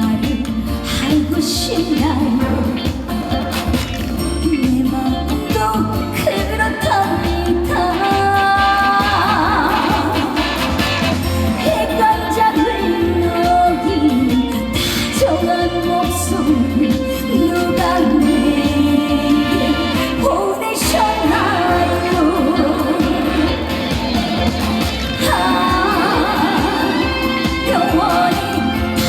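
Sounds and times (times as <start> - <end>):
full band with steady beat: 0.0 - 29.0
woman singing: 0.0 - 29.0.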